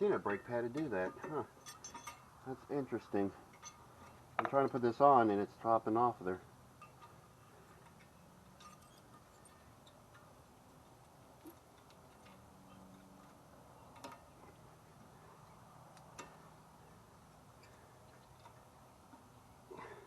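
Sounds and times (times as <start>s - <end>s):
faint metal clicks and taps: 15.4s - 16.5s.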